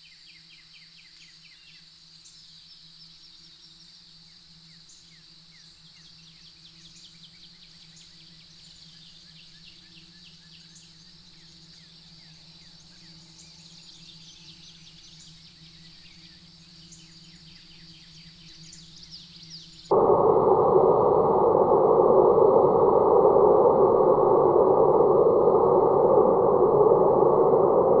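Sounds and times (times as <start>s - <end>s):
low steady hum: 10.8s - 28.0s
high-pitched drone: 19.9s - 28.0s.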